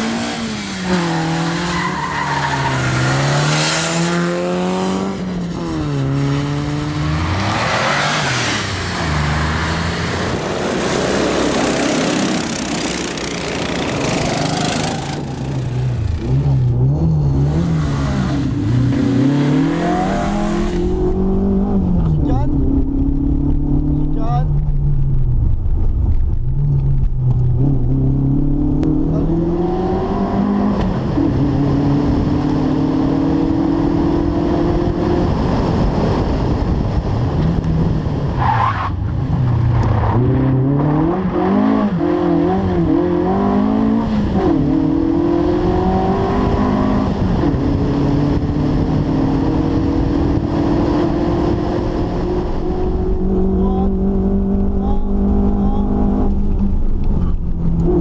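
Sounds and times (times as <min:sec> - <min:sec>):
rally car engine from inside cabin: 0:39.8 - 0:58.0.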